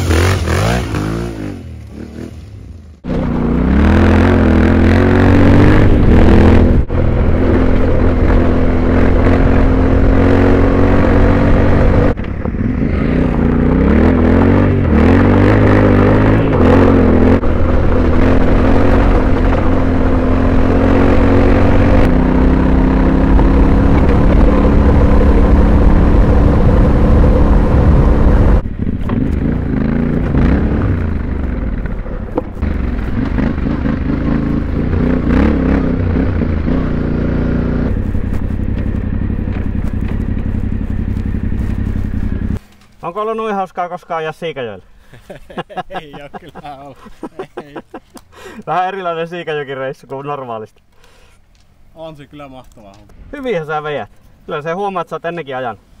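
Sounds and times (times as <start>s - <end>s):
motorcycle engine running: 0.0s - 42.6s
wind noise: 3.4s - 42.6s
tyres on gravel: 37.9s - 43.4s.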